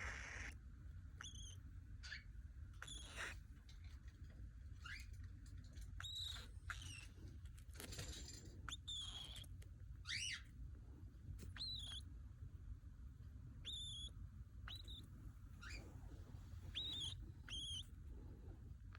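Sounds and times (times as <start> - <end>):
cockatiel whistled chirps: 1.2 - 2.2, 2.8 - 3.4, 6.0 - 7.1, 8.7 - 10.4, 11.5 - 12.0, 13.6 - 15.0, 16.7 - 17.9.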